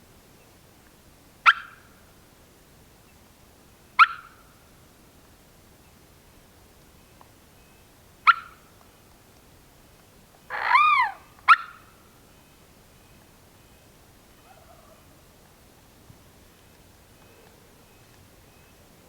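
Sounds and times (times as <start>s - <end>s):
sharp short turkey calls: 4.0s - 4.4s, 8.2s - 8.6s, 10.5s - 12.0s
turkey gobbling: 10.5s - 11.8s.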